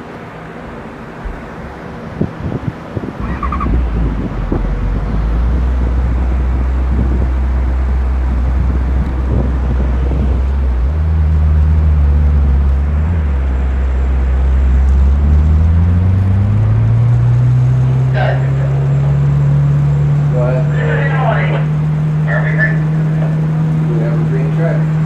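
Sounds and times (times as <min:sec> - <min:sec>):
racing motorcycle engine revving: 0:03.2 - 0:25.0.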